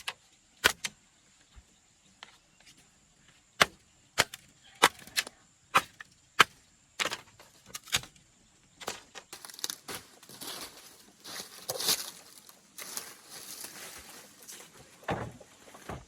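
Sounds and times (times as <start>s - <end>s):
blade chopping palm leaves: 0.0s - 0.9s, 3.6s - 8.1s
leaves rustling: 9.4s - 15.9s.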